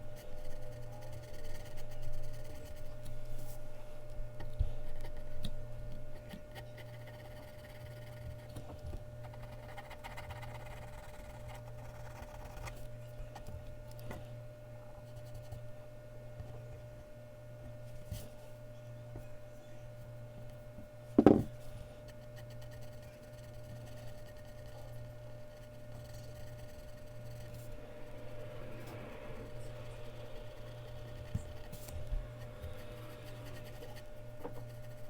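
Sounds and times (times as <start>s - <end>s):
electrical hum: 0.0s - 35.0s
pencil scratching on paper: 0.2s - 3.0s, 6.2s - 8.5s, 9.3s - 12.8s, 22.1s - 35.0s.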